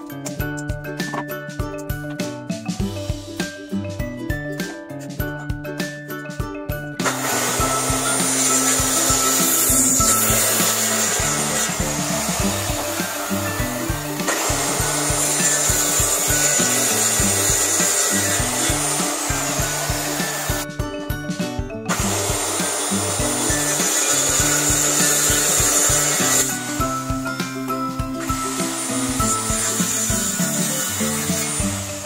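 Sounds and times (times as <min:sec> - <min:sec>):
background music: 0:00.0 - 0:32.0
power tool whining on wood: 0:07.0 - 0:20.7, 0:21.9 - 0:32.0.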